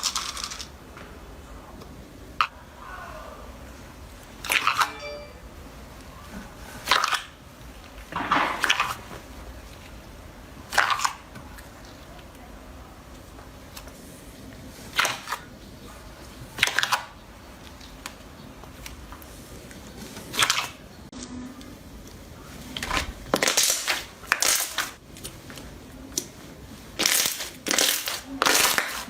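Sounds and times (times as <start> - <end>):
slime squelching and crackling: 22.6 - 29.0.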